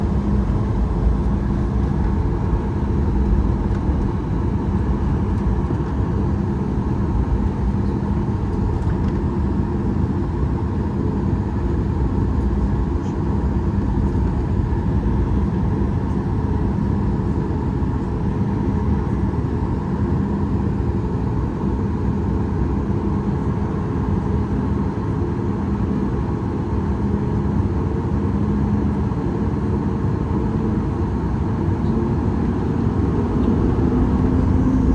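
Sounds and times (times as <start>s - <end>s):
jet engines rumbling: 0.0s - 21.1s, 29.6s - 34.9s.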